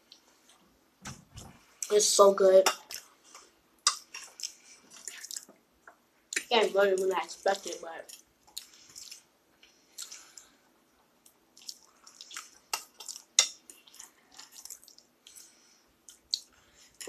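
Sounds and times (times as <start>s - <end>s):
person chewing food: 2.8s - 6.5s, 8.1s - 17.0s.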